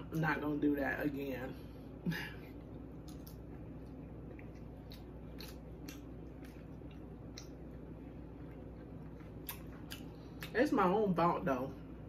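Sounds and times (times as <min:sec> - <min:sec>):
faint low hum: 0:00.0 - 0:12.0
person chewing: 0:02.5 - 0:10.5.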